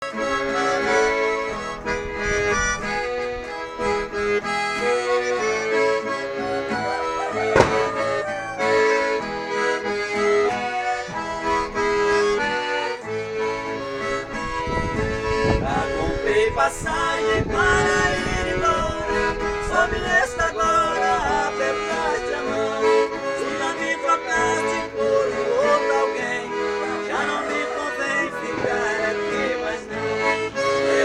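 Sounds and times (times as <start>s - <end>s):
accordion melody: 0.0s - 31.0s
sharp click: 7.5s - 8.1s.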